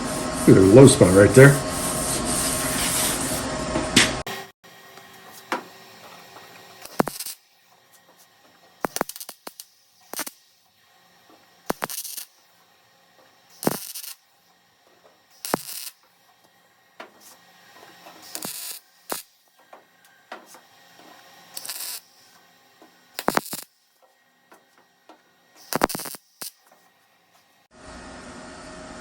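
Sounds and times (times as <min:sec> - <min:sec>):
welding crackling bursts: 0:05.5 - 0:12.6, 0:13.3 - 0:27.6.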